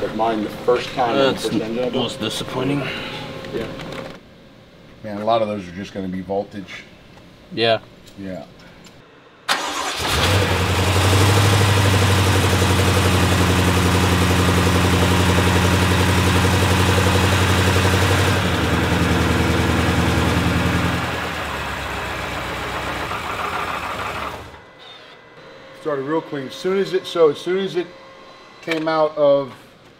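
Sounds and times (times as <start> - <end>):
car engine idling: 9.5 - 24.8.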